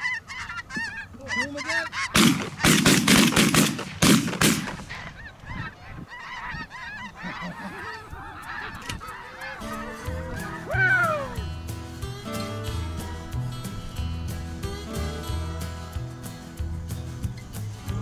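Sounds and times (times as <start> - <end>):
geese honking: 0.0 - 3.4, 4.5 - 11.6
shotgun shots: 2.1 - 5.1
music: 9.6 - 18.0.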